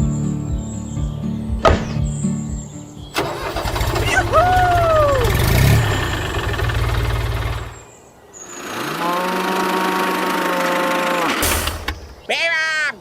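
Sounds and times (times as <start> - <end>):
small engine knocking: 3.2 - 7.8.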